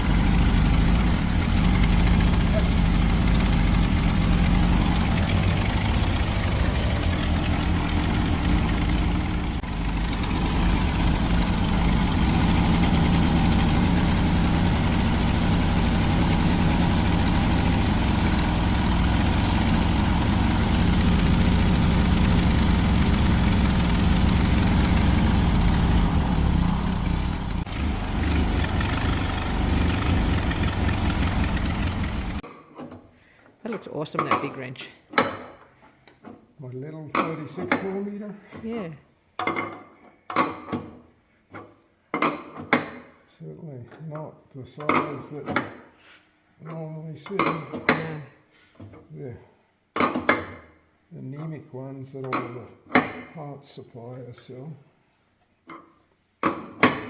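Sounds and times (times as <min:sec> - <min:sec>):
air-cooled engine idling: 0:00.0 - 0:32.4.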